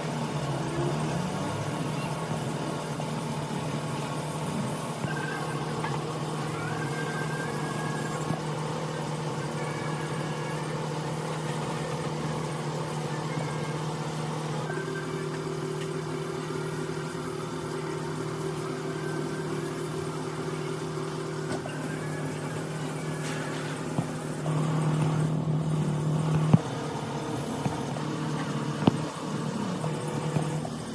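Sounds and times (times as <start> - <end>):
car engine idling: 19.5 - 30.9.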